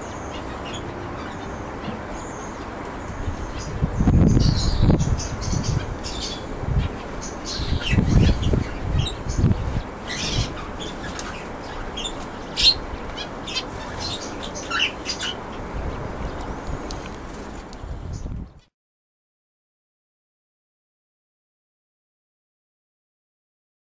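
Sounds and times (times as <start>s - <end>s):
canaries chirping: 0.0s - 17.0s
low rumbling noise: 0.0s - 18.6s.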